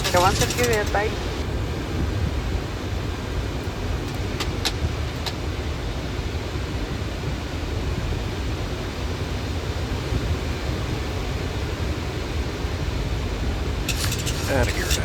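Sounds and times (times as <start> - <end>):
aircraft engine and airflow rumble: 0.0 - 15.0.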